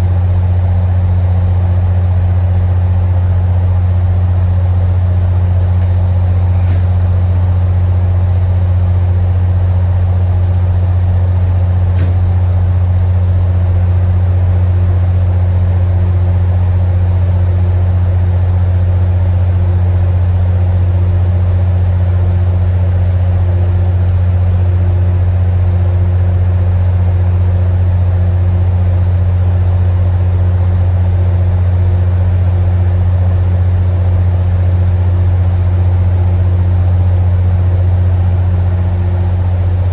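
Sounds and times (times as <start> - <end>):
diesel locomotive engine drone: 0.0 - 39.9.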